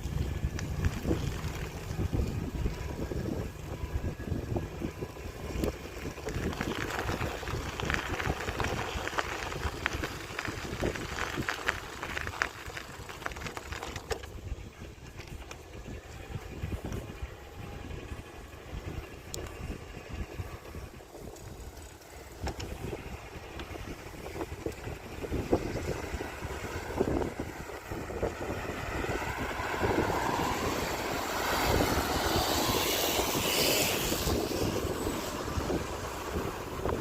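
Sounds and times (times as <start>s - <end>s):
wind buffeting microphone: 0.0s - 37.0s
light rattles and clicks: 5.5s - 17.2s.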